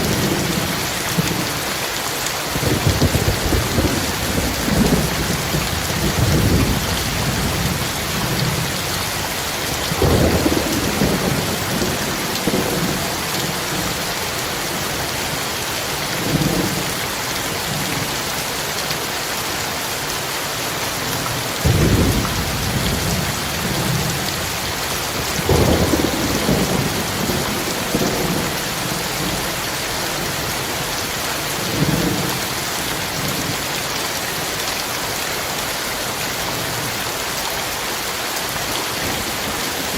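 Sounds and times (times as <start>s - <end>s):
heavy rain: 0.0s - 39.9s
thunder rumbling: 2.6s - 14.0s, 21.6s - 30.3s.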